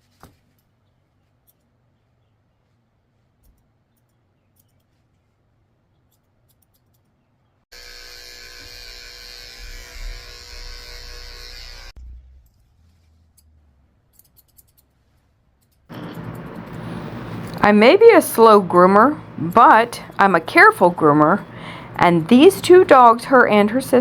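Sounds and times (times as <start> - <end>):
electric clippers buzzing: 7.7 - 11.9, 15.9 - 18.1
grooming shears snipping: 15.9 - 17.6.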